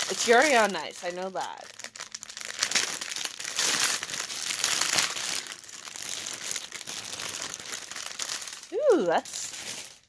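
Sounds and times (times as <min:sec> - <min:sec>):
packaging crinkling: 0:00.0 - 0:10.0.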